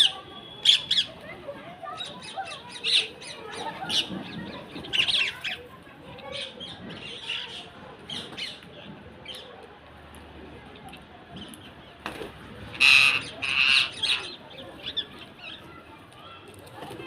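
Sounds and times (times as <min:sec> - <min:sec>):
birds squawking and chirping: 0:00.0 - 0:01.2, 0:01.8 - 0:09.5, 0:12.7 - 0:15.8.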